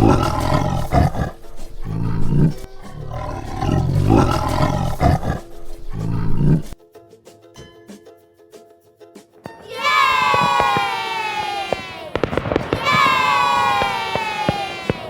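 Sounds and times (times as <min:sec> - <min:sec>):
tiger roaring: 0:00.0 - 0:06.8
faint background music: 0:00.0 - 0:10.4.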